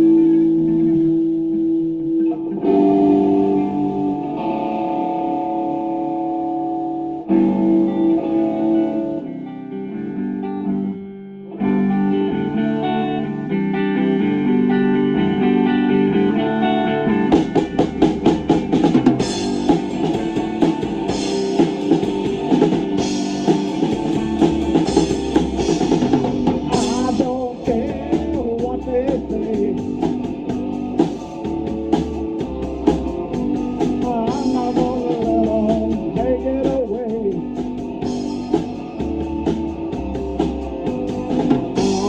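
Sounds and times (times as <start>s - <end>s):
guitar sustained chords: 0.0s - 42.0s
rock band playing live: 0.0s - 42.0s
drum kit beat: 17.3s - 42.0s.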